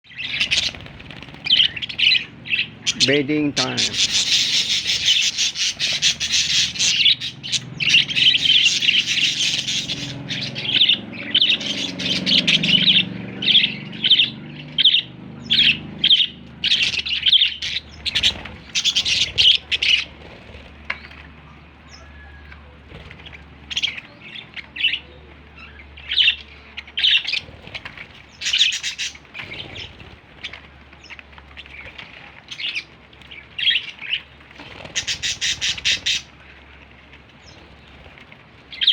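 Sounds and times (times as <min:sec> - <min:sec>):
budgerigar chirping and squawking: 0:00.1 - 0:20.5, 0:23.3 - 0:30.1, 0:33.6 - 0:36.3.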